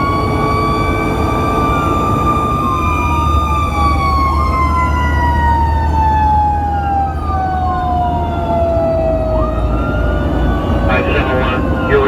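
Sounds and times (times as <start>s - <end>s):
fire engine siren wailing: 0.0s - 12.0s
truck engine rumble: 0.0s - 12.0s.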